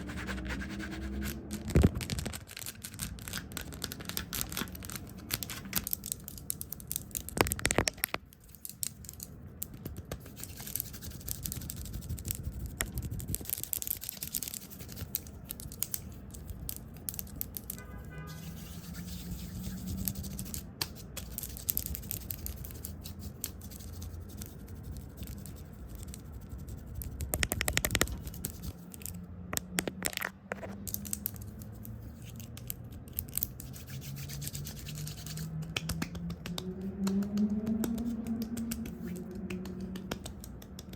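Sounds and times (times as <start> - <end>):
brushing and scratching on lens: 0.0 - 29.2, 29.8 - 36.2
sharp taps and clicks: 26.9 - 28.7, 35.6 - 40.9.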